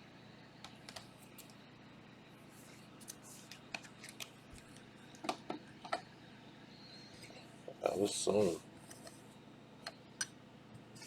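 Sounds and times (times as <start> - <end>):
cards rustling and clicking: 3.0 - 4.9.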